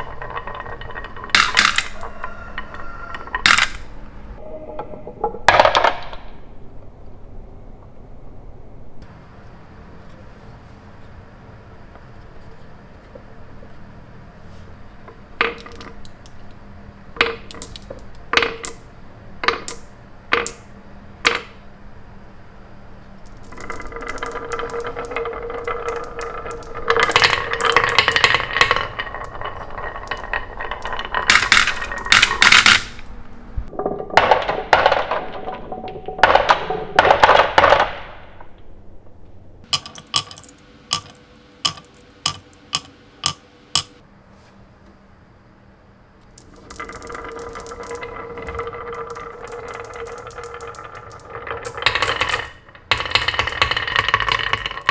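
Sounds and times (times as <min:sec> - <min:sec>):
marbles clattering on toy track: 0:00.0 - 0:03.9, 0:15.1 - 0:16.6, 0:17.2 - 0:21.6, 0:23.3 - 0:33.1, 0:33.7 - 0:38.1, 0:39.6 - 0:44.0, 0:46.3 - 0:54.9.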